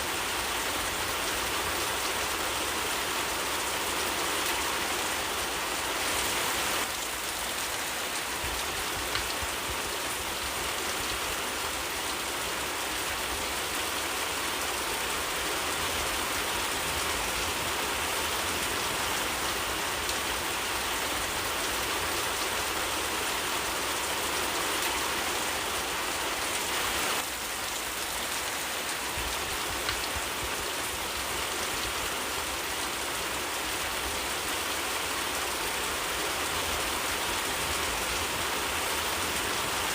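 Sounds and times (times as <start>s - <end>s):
steady rain in a forest: 0.0s - 39.9s.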